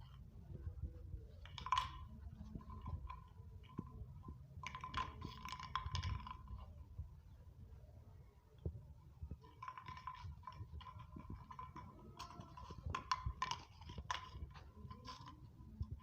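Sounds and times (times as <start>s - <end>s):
bottle rolling clicks and scrapes: 1.3s - 6.9s, 9.3s - 16.0s.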